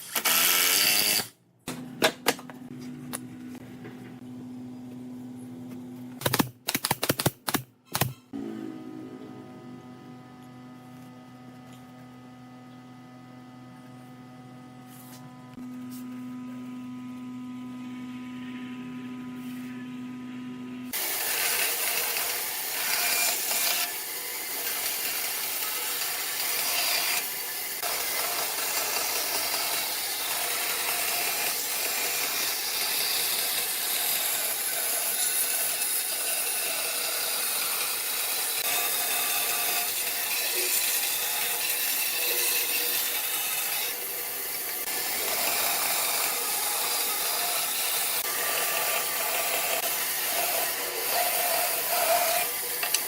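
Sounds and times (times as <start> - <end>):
tool cutting wood: 0.0 - 1.4, 6.2 - 8.4, 20.9 - 53.0
power tool humming: 20.9 - 53.0.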